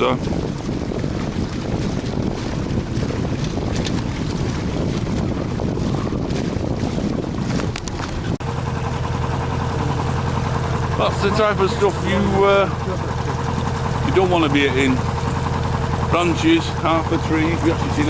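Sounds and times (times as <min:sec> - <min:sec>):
wind buffeting microphone: 0:00.0 - 0:18.0
steady low hum: 0:08.4 - 0:18.0.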